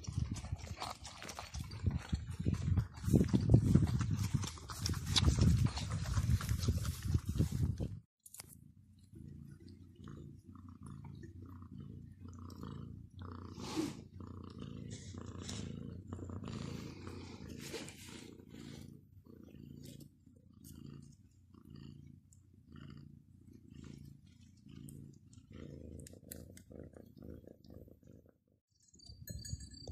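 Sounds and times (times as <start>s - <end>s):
cat purring: 8.6s - 28.6s.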